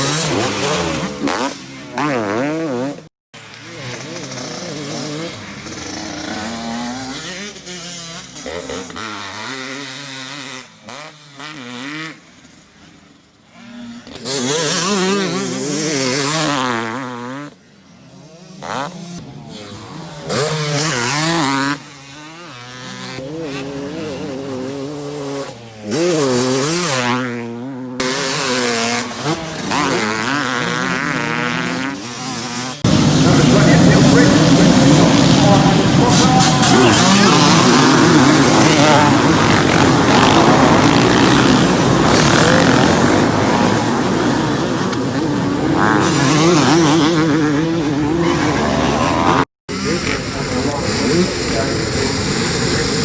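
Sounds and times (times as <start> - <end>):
motorcycle engines revving: 0.0 - 53.0.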